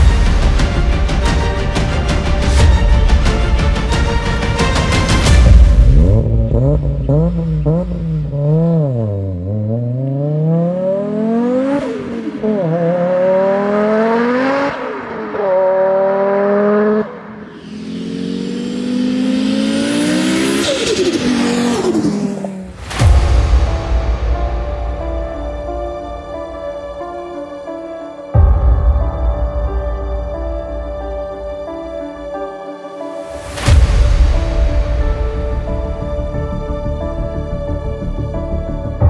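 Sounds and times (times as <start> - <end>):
car engine revving and accelerating: 5.3 - 23.0.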